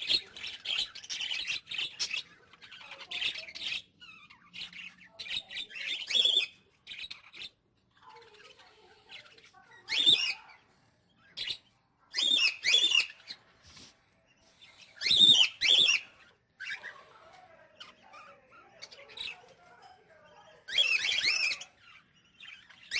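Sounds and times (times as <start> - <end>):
faint parrot chatter: 0.0 - 22.9
parrots chirping calls: 0.0 - 22.9.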